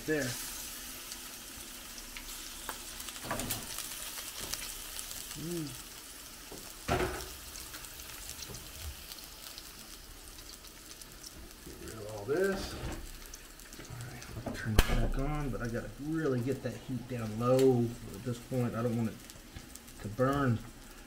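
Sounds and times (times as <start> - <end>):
food sizzling in hot oil: 0.0 - 21.0
knock against a pan: 6.9 - 7.3.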